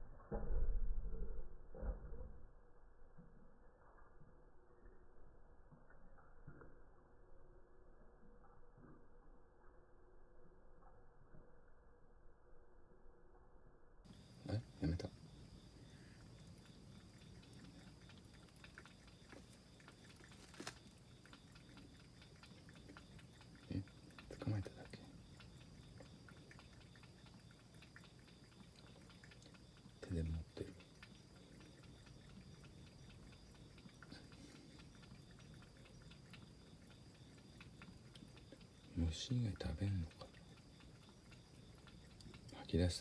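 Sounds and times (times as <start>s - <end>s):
faint background hiss: 14.0s - 43.0s
soft ticks: 16.0s - 43.0s.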